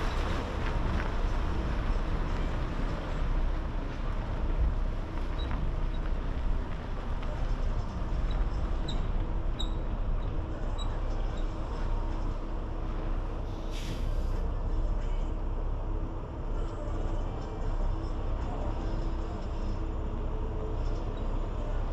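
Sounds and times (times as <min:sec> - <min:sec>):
truck engine and road rumble: 0:00.0 - 0:21.9
short hiss: 0:13.7 - 0:14.4.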